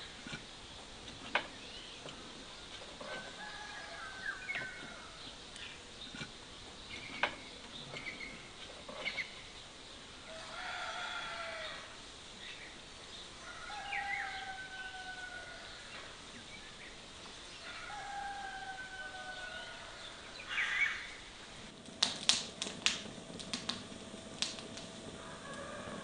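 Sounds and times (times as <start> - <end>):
rooster crowing: 3.0 - 5.2, 10.2 - 12.0, 13.4 - 16.1, 17.6 - 21.0, 25.1 - 26.0
sharp clicks and snaps: 21.8 - 25.0.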